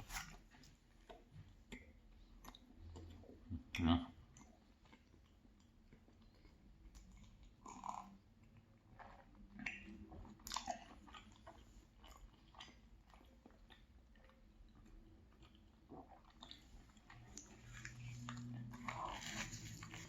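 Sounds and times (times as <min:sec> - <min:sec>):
chewing and biting: 0:04.3 - 0:20.0.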